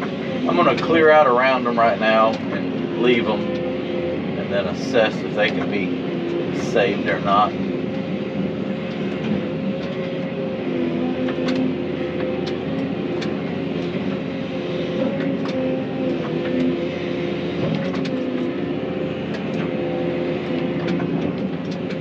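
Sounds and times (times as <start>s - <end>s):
diesel engine running: 0.0s - 22.0s
sharp clicks and cracks: 11.2s - 14.3s, 15.0s - 16.7s, 17.6s - 18.5s, 19.3s - 19.7s, 20.4s - 22.0s.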